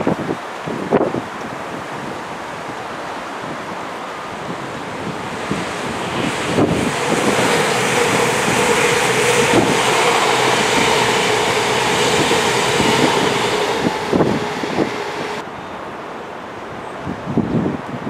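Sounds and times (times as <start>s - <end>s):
diesel train roaring past: 3.0s - 15.9s.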